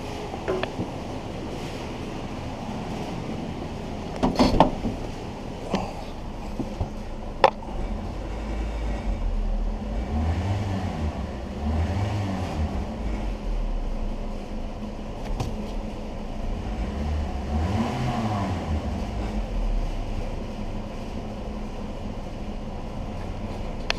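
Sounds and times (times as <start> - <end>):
car engine revving: 6.2 - 14.5, 16.2 - 20.6.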